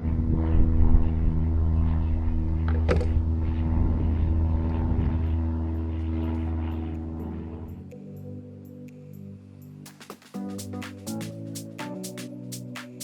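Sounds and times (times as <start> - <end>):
engine droning: 0.0 - 8.0.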